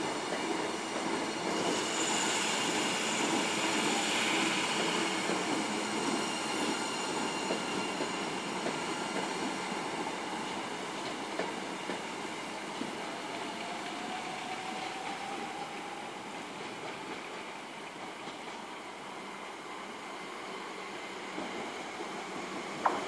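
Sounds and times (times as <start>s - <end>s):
train wheels rumbling on rail: 0.0s - 23.0s
faint high-pitched squeal: 1.5s - 10.9s.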